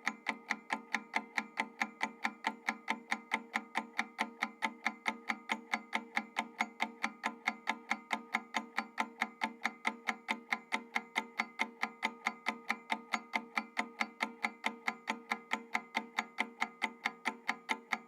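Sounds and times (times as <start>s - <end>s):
clock ticking: 0.0s - 18.0s.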